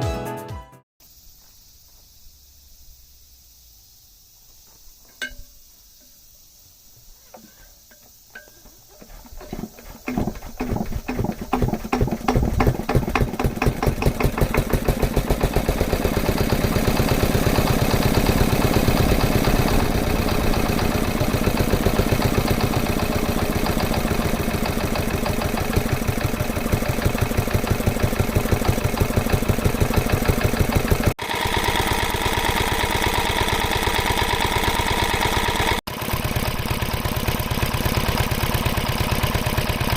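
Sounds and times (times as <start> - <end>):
engine starter clicks: 7.4 - 39.9
diesel engine firing and running: 9.5 - 39.9.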